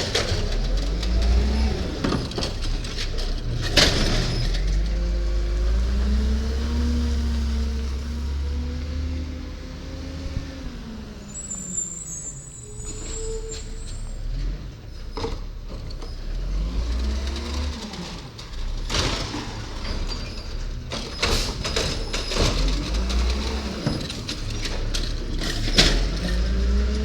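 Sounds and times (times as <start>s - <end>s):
metal clanks and bangs: 0.0s - 4.9s, 18.0s - 26.9s
diesel engine revving: 0.0s - 27.0s
high squeal: 11.3s - 14.3s.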